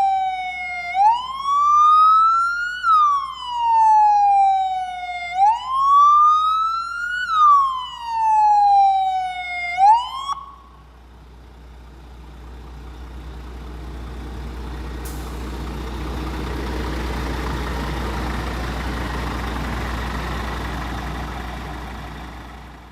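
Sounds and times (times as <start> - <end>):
fire truck siren wailing: 0.0 - 11.1.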